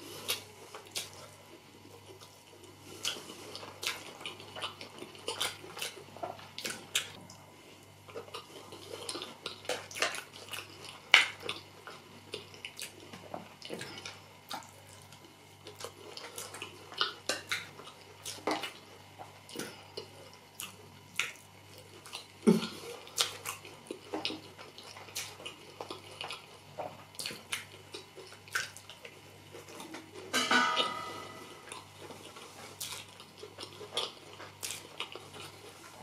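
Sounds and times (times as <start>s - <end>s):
wet chewing and lip smacking: 0.2s - 7.4s, 8.0s - 30.2s, 31.6s - 36.0s.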